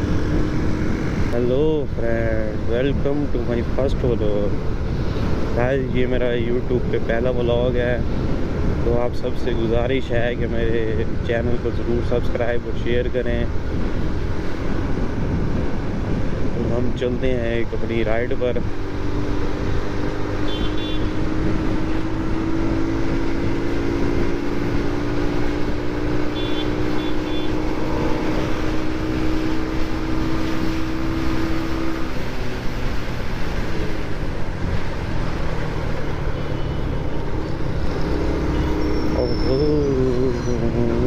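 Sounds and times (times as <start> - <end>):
motorcycle engine: 0.0 - 1.4, 18.7 - 41.0
wind rumble on microphone: 0.0 - 20.4, 21.0 - 26.8
road noise: 0.0 - 41.0.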